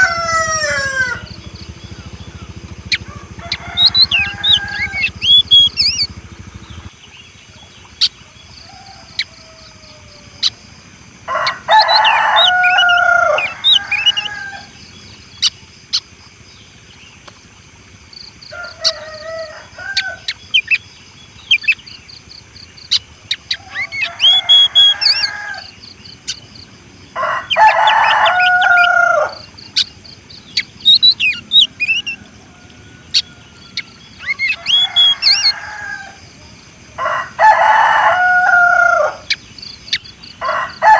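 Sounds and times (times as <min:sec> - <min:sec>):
rooster crowing: 0:00.0 - 0:06.9, 0:08.2 - 0:10.6, 0:11.3 - 0:14.9, 0:18.5 - 0:20.3, 0:23.6 - 0:25.8, 0:27.2 - 0:29.5, 0:31.0 - 0:39.4, 0:40.4 - 0:40.9
small birds chirping: 0:00.0 - 0:10.8, 0:11.4 - 0:36.8, 0:38.2 - 0:40.5.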